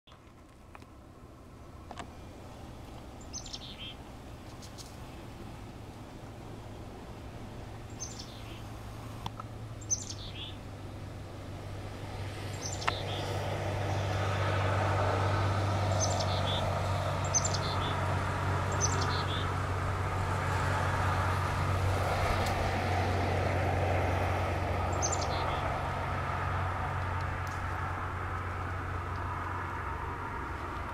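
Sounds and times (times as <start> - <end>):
high falling bird calls: 3.2 - 5.0, 7.8 - 8.8, 9.8 - 10.7, 12.5 - 14.2, 15.9 - 18.0, 18.7 - 19.5, 24.9 - 25.7.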